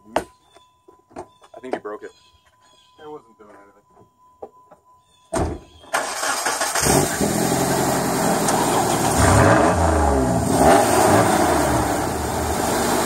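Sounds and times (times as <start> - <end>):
car engine starting and revving: 6.0 - 13.0.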